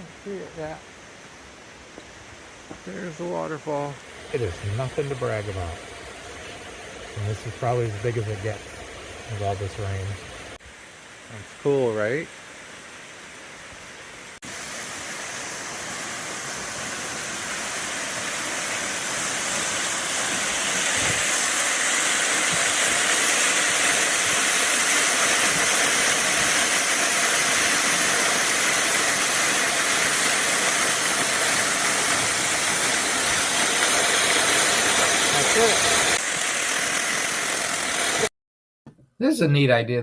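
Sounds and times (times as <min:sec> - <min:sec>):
waterfall rushing: 0:14.4 - 0:38.3.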